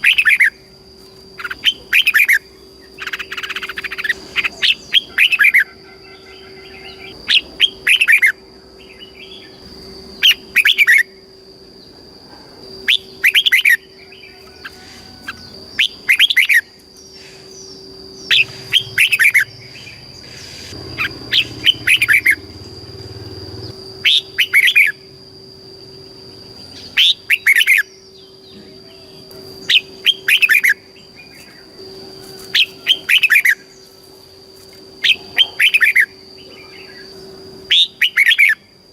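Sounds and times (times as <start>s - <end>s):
bird singing whistled notes: 1.4s - 9.6s, 10.2s - 11.2s, 12.8s - 22.7s, 23.6s - 25.1s, 25.8s - 31.8s, 35.0s - 38.7s.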